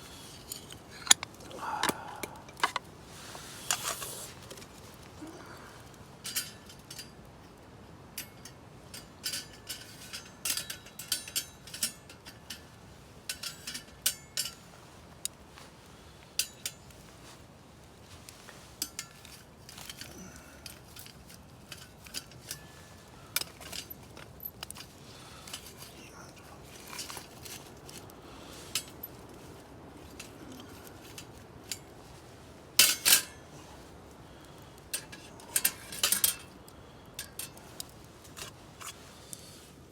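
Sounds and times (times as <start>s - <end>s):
metal utensils clinking and scraping: 0.2s - 2.8s, 3.5s - 4.8s, 8.2s - 12.6s, 13.3s - 14.7s, 18.8s - 28.0s, 32.8s - 33.5s, 34.9s - 36.6s.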